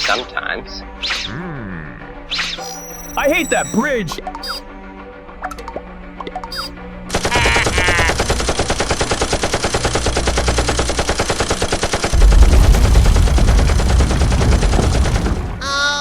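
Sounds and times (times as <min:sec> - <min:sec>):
short squeaky sound: 0:02.6 - 0:03.8
deep rumble: 0:12.1 - 0:16.0.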